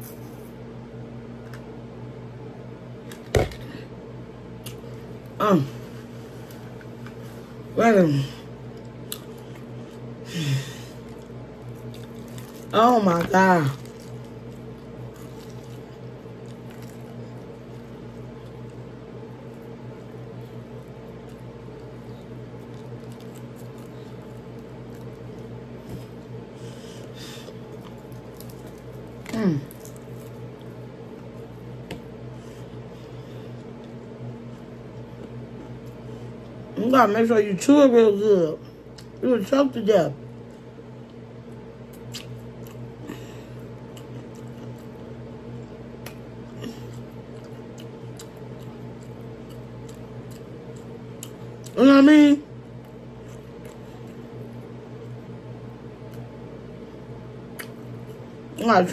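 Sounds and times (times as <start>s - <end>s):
low hum: 0.0s - 58.9s
close-up chewing: 8.6s - 10.2s, 10.8s - 32.1s, 40.4s - 51.8s, 52.7s - 54.7s
person chewing wet mouth clicks: 57.6s - 57.8s.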